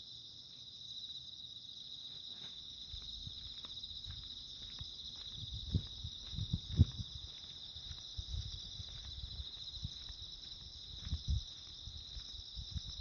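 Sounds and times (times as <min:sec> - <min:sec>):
insects chirring: 0:00.0 - 0:13.0
soft footsteps: 0:02.0 - 0:13.0.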